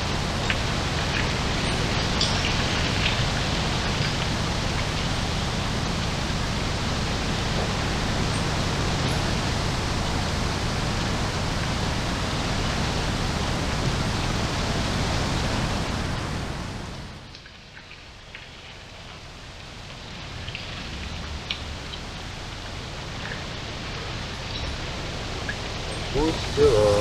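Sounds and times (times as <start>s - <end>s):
strong wind buffeting microphone: 0.0s - 17.2s.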